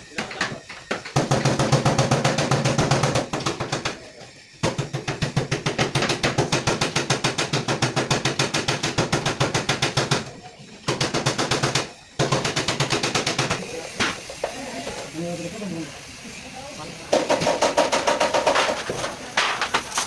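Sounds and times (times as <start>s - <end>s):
rapid mechanical clatter: 0.1s - 14.5s, 17.1s - 20.0s.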